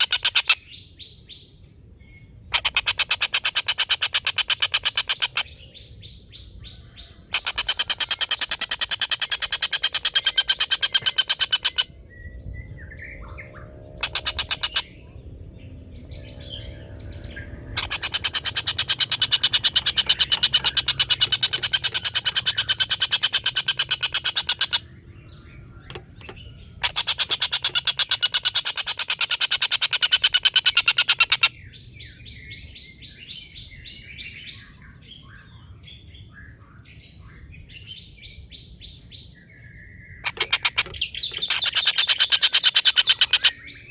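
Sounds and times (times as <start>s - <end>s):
small birds chirping: 0.0s - 43.9s
kingfisher cackling chatter: 17.5s - 24.8s.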